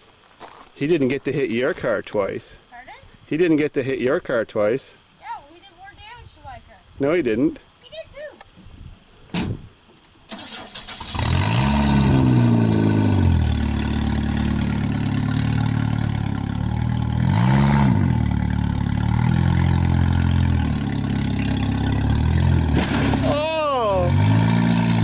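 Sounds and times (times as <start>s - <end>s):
car engine starting and revving: 10.3s - 25.0s.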